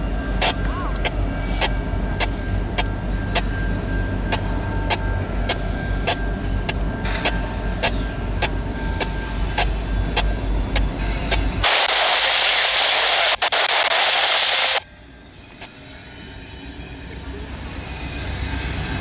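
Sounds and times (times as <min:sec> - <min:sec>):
freight train rumbling past: 0:00.0 - 0:13.6, 0:14.8 - 0:19.0
loud hiss: 0:07.0 - 0:14.8.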